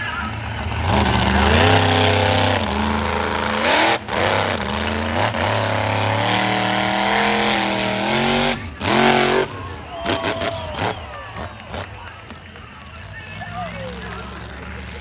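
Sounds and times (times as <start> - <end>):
monster truck engine revving: 0.0 - 12.4, 13.1 - 15.0.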